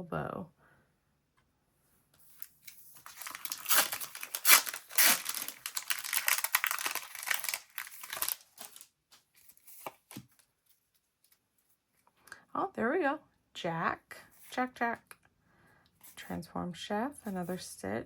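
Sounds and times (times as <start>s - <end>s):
wrapper tearing and crinkling: 2.4s - 10.2s.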